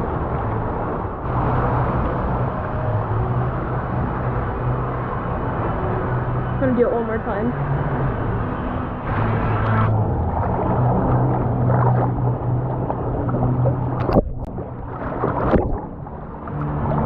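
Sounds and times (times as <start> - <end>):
low hum: 0.0 - 17.0
water rushing and gurgling: 0.0 - 17.0
sharp splashes: 9.1 - 17.0.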